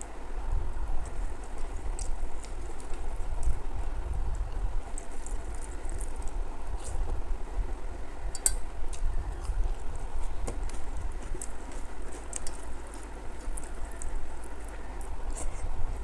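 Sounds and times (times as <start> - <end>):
steady low rumble: 0.0 - 16.0
chewing and smacking: 1.0 - 3.6, 8.4 - 16.0.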